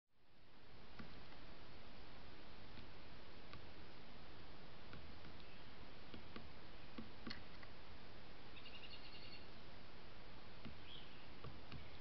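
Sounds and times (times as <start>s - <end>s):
steady hiss: 0.2s - 8.6s
small bird trilling and chirping: 8.5s - 9.6s, 10.7s - 12.0s.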